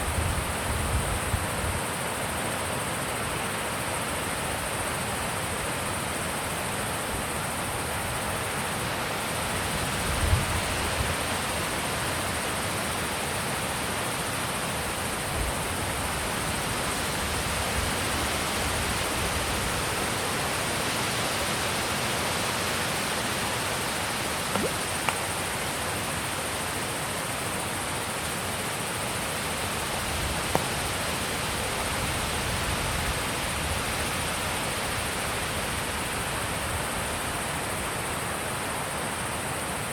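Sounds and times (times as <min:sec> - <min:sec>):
faint ticks: 0:24.5 - 0:25.3.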